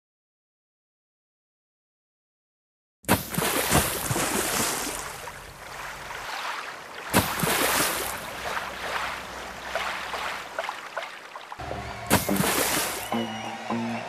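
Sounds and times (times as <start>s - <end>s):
sharp loud splash: 3.1s - 13.1s
water rushing and splashing: 3.1s - 14.0s.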